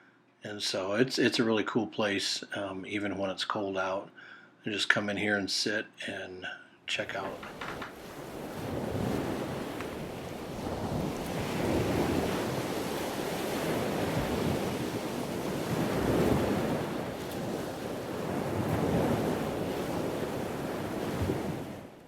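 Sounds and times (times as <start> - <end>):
waves washing onto beach: 7.1 - 22.0
wind buffeting microphone: 7.3 - 22.0.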